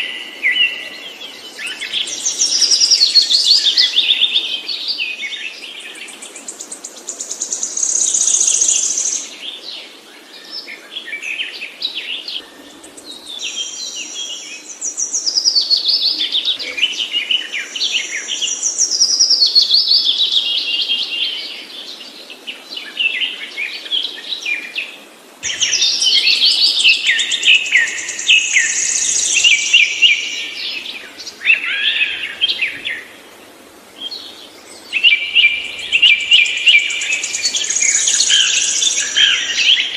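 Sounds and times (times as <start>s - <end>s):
songbird singing trills: 11.4s - 21.4s, 25.4s - 33.2s, 34.0s - 39.9s.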